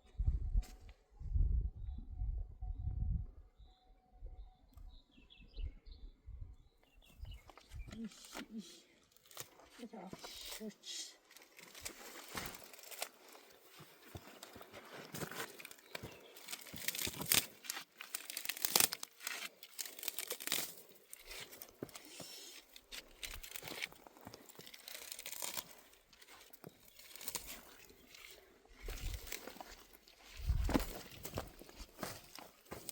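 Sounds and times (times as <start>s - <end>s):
dry plant stems rustling and crackling: 7.4s - 32.9s.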